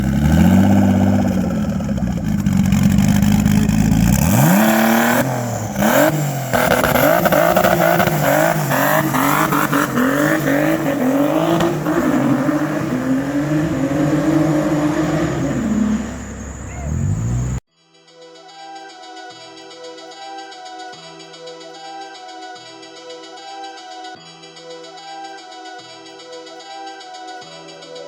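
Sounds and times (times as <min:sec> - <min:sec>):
car engine accelerating: 0:00.0 - 0:17.6.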